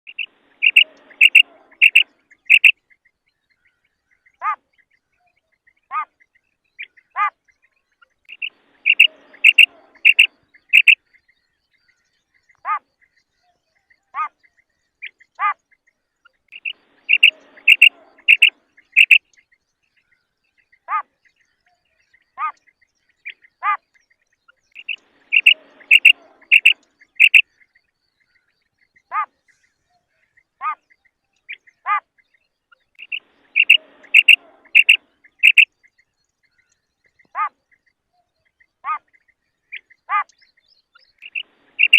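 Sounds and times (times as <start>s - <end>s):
quail calling: 0.0s - 2.7s, 8.3s - 11.0s, 16.6s - 19.2s, 24.8s - 27.4s, 33.0s - 35.7s, 37.3s - 37.6s, 41.2s - 41.9s.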